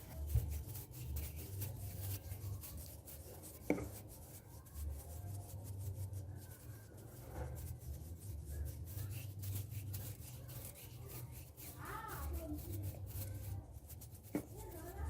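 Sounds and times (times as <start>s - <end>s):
hands rubbing near microphone: 0.0s - 15.0s.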